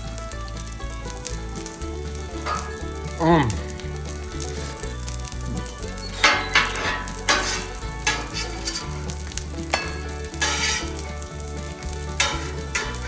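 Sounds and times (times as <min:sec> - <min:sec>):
food sizzling on griddle: 0:00.0 - 0:13.0.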